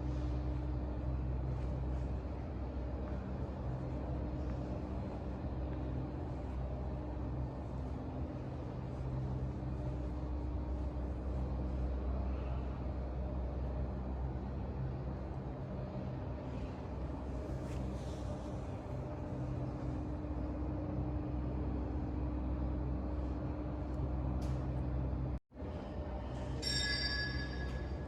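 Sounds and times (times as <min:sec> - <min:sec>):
low droning hum: 0:00.0 - 0:28.0.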